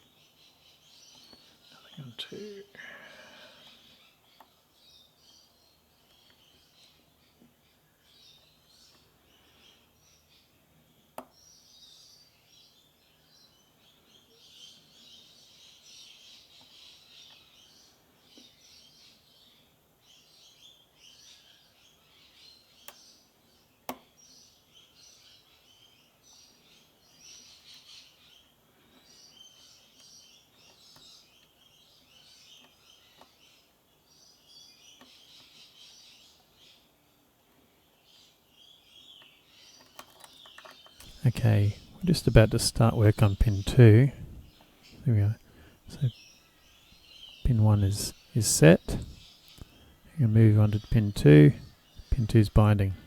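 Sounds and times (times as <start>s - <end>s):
faint birds chirping: 0.0s - 53.0s.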